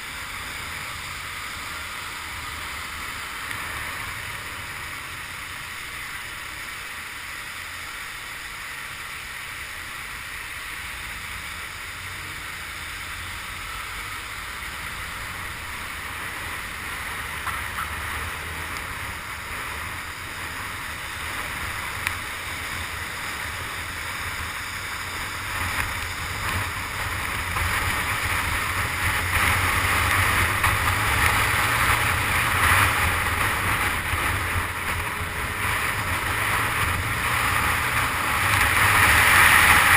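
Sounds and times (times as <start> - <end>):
motorcycle engine rumble: 0.0 - 39.9
wind and rain noise: 0.0 - 39.9.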